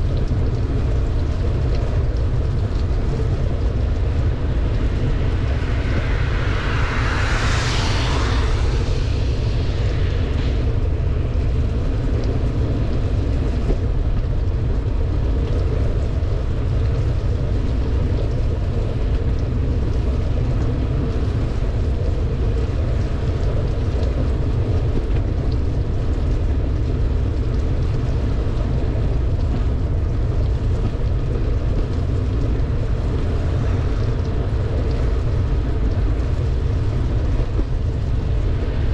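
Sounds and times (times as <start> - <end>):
wind rumble on microphone: 0.0 - 38.9
rush of hiss: 4.6 - 12.1.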